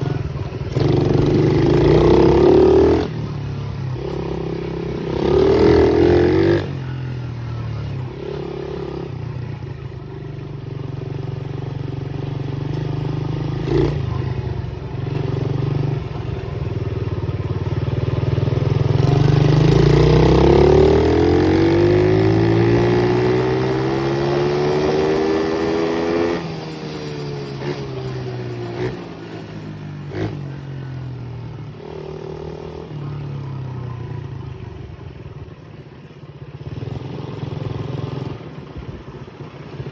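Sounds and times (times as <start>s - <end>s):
pit bike engine revving: 0.0s - 9.2s, 18.0s - 30.8s.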